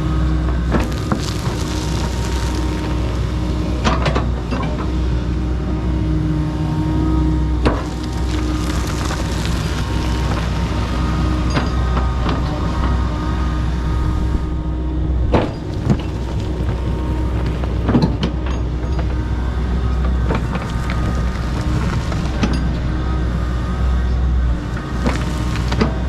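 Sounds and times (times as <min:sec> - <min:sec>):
excavator diesel engine running: 0:00.3 - 0:26.0
wood snapping: 0:00.7 - 0:03.9, 0:07.7 - 0:11.4, 0:20.3 - 0:22.5.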